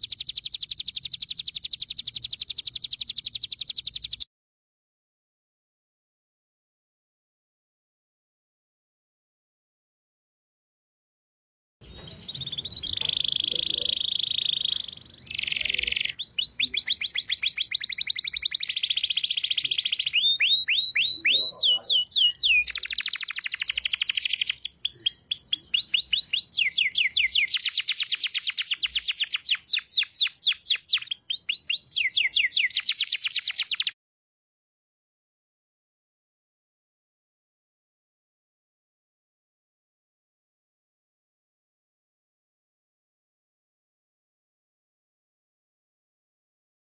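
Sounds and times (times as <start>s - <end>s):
songbird trilling: 0.0s - 4.2s, 11.8s - 34.0s.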